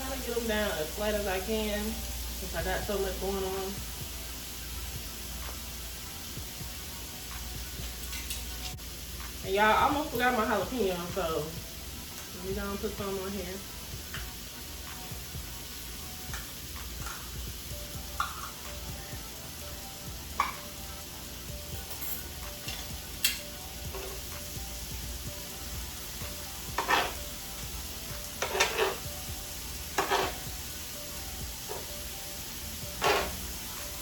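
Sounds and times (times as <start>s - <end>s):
food sizzling on griddle: 0.0s - 34.0s
metal spatula scraping griddle: 26.7s - 27.3s, 28.3s - 29.2s, 29.8s - 30.5s, 32.9s - 33.6s.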